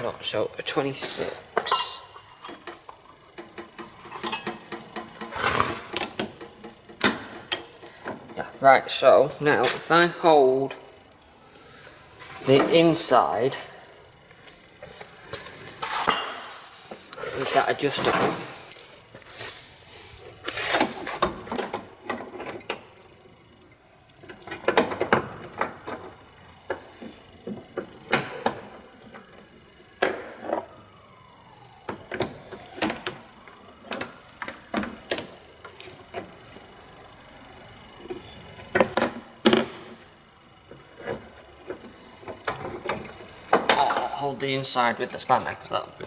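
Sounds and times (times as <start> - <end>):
metal spanners clinking and scraping: 0.7 - 8.2, 44.8 - 46.0.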